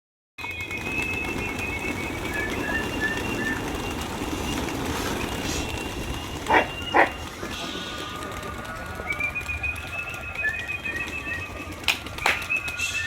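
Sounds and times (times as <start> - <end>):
high whistling bird chirps: 0.4 - 7.3, 9.0 - 13.0.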